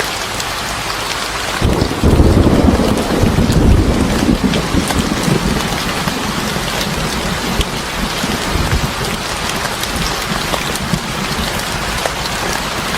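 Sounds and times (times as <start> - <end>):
rain falling on a surface: 0.0 - 12.9.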